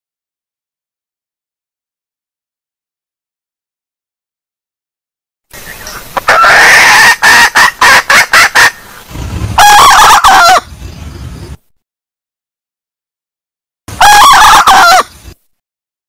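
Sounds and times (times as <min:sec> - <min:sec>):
hen calling and clucking: 0:05.6 - 0:10.8, 0:13.9 - 0:15.4.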